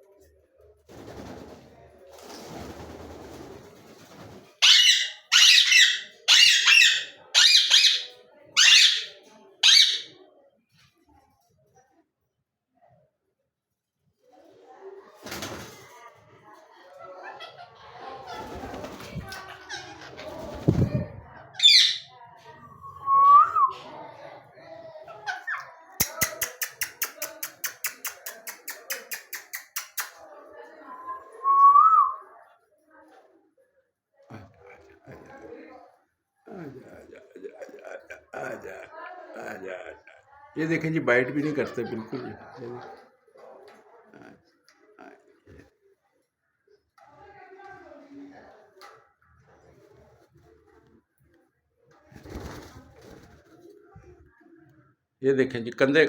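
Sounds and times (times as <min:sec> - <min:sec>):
parrot squawking: 0:04.6 - 0:10.2, 0:21.6 - 0:22.2
parrot clicking calls: 0:26.0 - 0:30.2.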